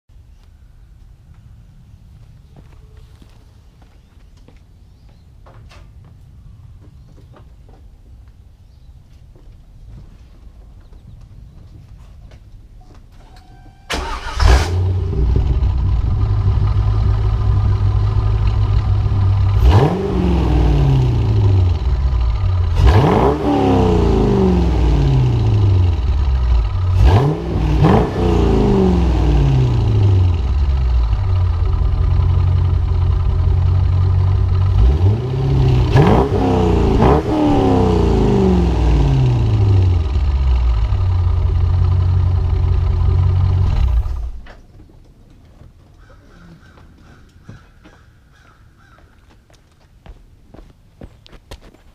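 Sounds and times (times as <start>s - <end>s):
car engine idling and revving: 13.9s - 44.6s.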